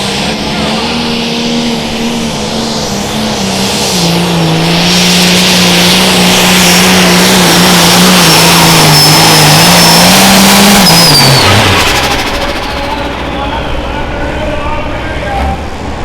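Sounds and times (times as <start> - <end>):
diesel engine at full throttle: 0.0 - 16.0
turbo whistle: 9.0 - 14.0.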